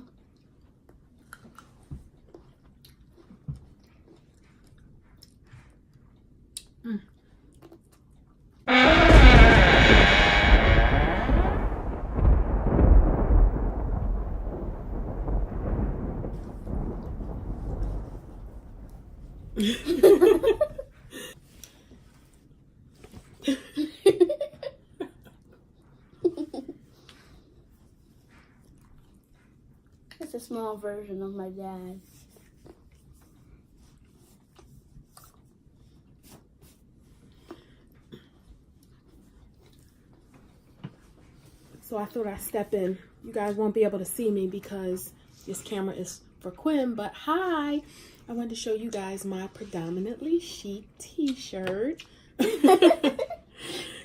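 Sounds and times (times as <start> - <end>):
child chewing with wet mouth clicks: 0.0 - 8.6, 34.1 - 36.6
soft low thumps: 8.7 - 20.5
person giggling: 19.6 - 21.3.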